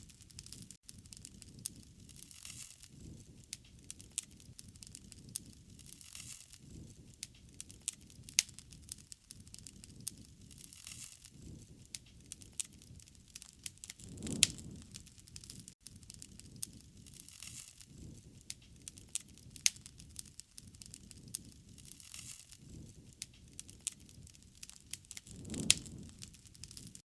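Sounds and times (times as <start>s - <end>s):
wood fire crackling: 0.0s - 27.0s
low rush of burning: 0.3s - 27.0s.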